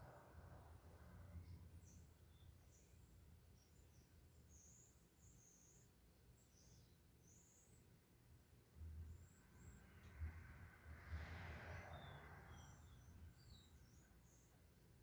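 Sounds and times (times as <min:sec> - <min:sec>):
faint low rumble: 0:08.7 - 0:14.0.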